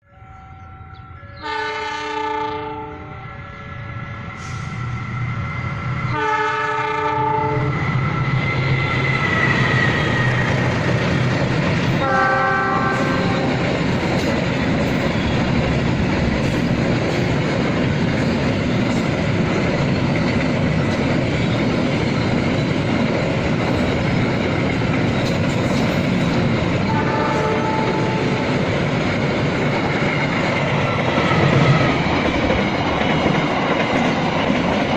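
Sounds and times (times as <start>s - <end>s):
train rumbling past: 0.1s - 34.9s
train horn blasts: 0.3s - 3.8s, 6.1s - 7.9s, 12.0s - 13.7s, 26.8s - 28.5s
wheels clacking over rail joints: 9.3s - 34.9s.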